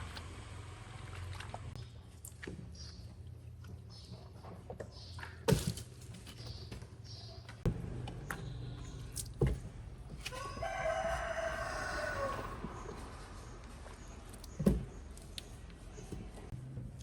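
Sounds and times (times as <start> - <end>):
rooster crowing: 10.2 - 12.9.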